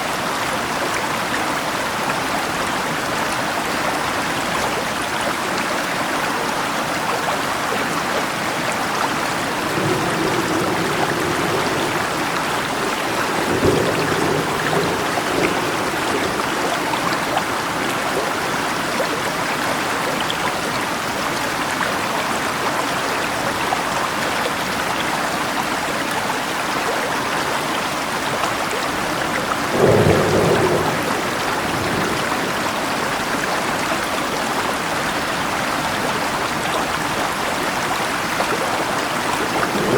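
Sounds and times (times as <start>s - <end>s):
rushing river water: 0.0s - 39.9s
steady rain: 0.0s - 39.9s
thunder rumbling: 9.3s - 18.7s, 29.7s - 33.4s, 39.1s - 39.9s.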